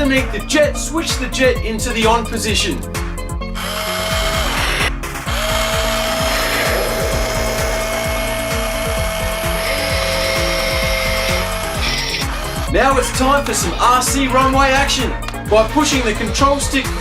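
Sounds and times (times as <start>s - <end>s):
background music with beat: 0.0s - 17.0s
toy jet engine whine: 3.6s - 12.7s.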